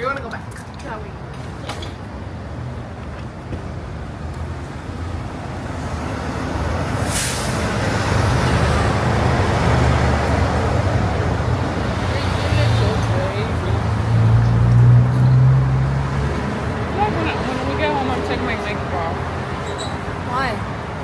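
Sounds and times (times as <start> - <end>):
vehicle engine rumble: 0.0 - 21.0
short sharp hiss: 7.0 - 7.8.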